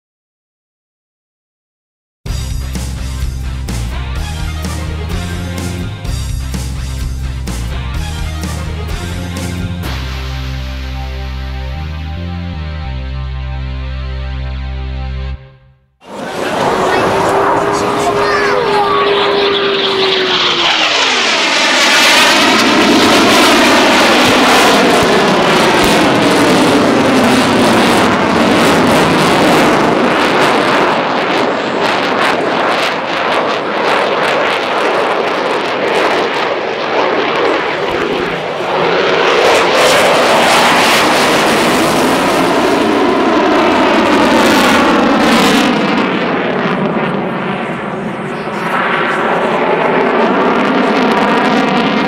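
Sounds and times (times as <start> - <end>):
jet engines roaring: 2.8 - 12.4, 16.0 - 52.0
jet whine dropping in pitch: 16.0 - 52.0.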